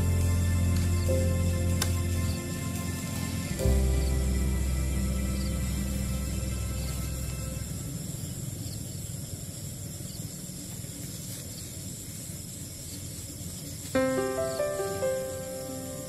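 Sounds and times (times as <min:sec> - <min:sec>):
piano-like background music: 0:00.0 - 0:07.7, 0:14.0 - 0:16.0
night insects droning: 0:00.0 - 0:16.0
steady hiss: 0:00.0 - 0:16.0.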